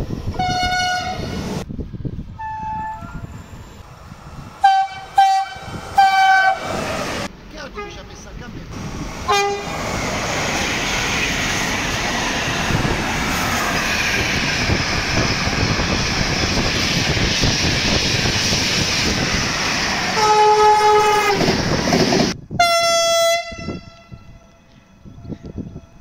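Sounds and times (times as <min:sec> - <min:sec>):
higher-pitched horn blast: 0:00.4 - 0:01.4, 0:04.6 - 0:06.8, 0:09.3 - 0:09.7, 0:20.2 - 0:21.5, 0:22.6 - 0:24.4
train horn: 0:00.4 - 0:01.4, 0:02.4 - 0:03.3, 0:04.6 - 0:06.7, 0:09.3 - 0:09.7, 0:20.2 - 0:21.5, 0:22.6 - 0:24.6
train wheels rushing on rails: 0:03.0 - 0:22.5.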